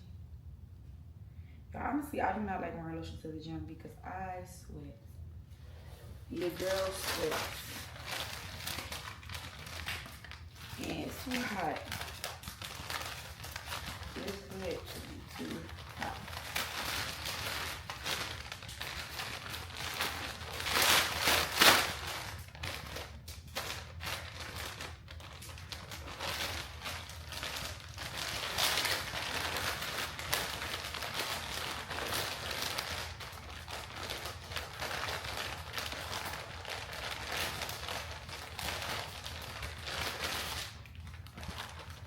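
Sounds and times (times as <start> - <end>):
plastic packaging crinkling: 6.3 - 42.0.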